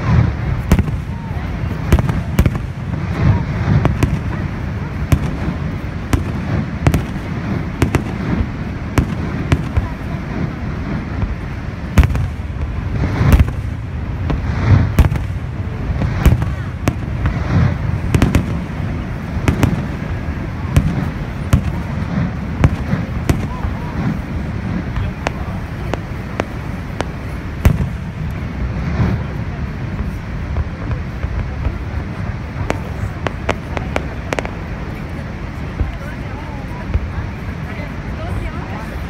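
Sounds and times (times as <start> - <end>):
constant low rumble: 0.0 - 39.0
firework shells bursting: 0.5 - 29.2.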